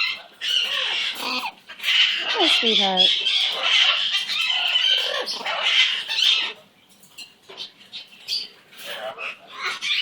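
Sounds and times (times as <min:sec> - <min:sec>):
pet bird chattering calls: 0:00.0 - 0:06.6.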